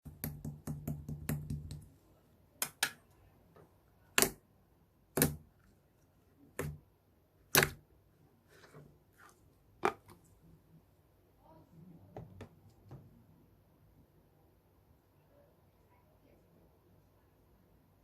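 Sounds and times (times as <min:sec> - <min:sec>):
slime clicking and popping: 0:07.5 - 0:07.8.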